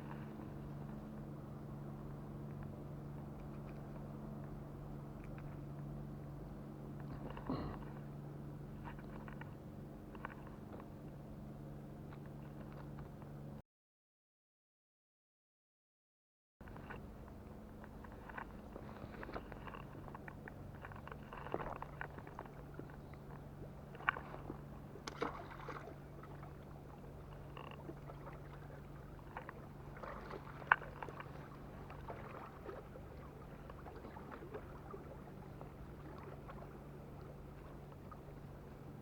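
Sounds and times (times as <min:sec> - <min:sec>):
faint low hum: 0:16.6 - 0:39.0.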